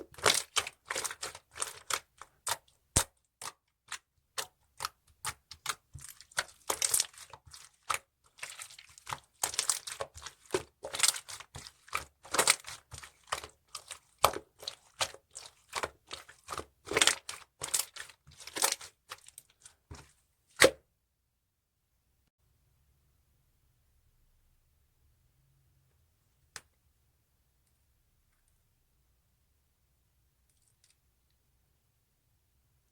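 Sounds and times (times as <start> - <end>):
slime squished by hand: 0.0 - 20.0, 20.6 - 20.8.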